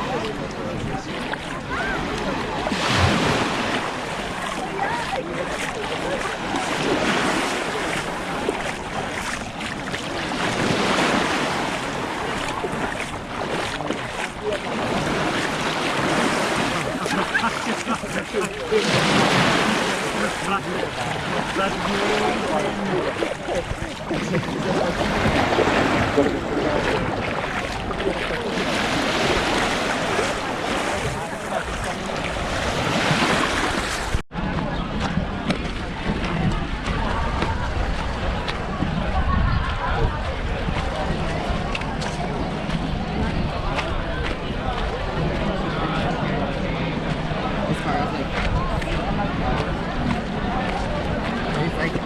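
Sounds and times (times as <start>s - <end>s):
waves on pebble shore: 2.6s - 34.2s
wind on microphone: 20.8s - 45.8s.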